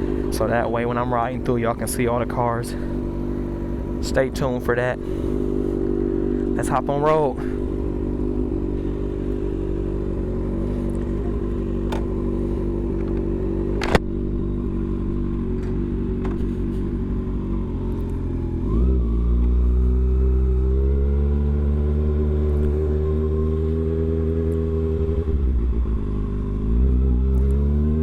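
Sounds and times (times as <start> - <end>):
motorcycle engine idling: 0.0 - 21.0
sharp click: 13.0 - 14.0.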